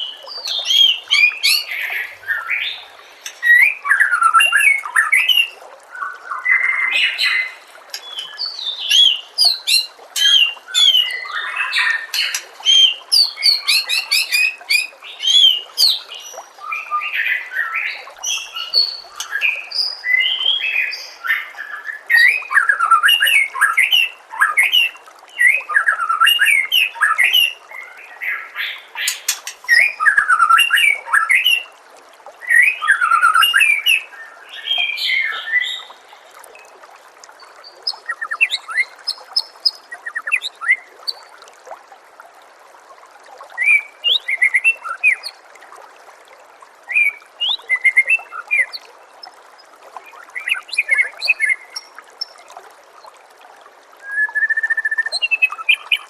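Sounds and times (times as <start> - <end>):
trickle of running water: 0.0 - 56.0
songbird whistling: 54.0 - 55.9.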